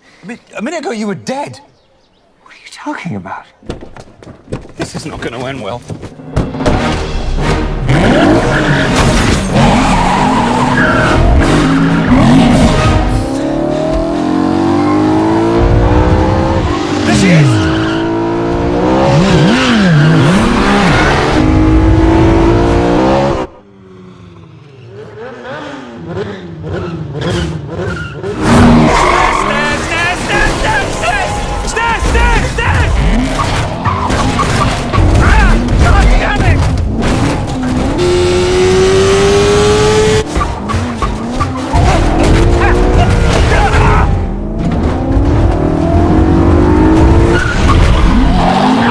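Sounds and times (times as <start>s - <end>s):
car engine revving: 6.4s - 23.5s, 32.8s - 48.9s
tyres squealing and skidding: 7.9s - 13.3s, 16.6s - 18.5s, 19.1s - 21.4s, 24.9s - 36.6s, 40.3s - 44.3s, 47.0s - 48.9s
car engine revving hard: 36.9s - 40.3s.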